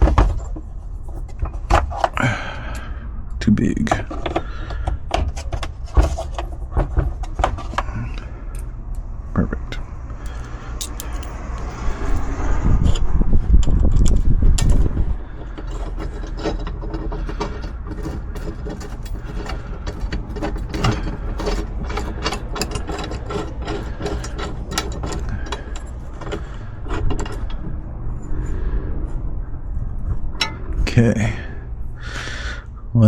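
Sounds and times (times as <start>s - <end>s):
hand ratchet clicking: 10.3s - 12.3s
loud low rumble: 19.2s - 33.0s.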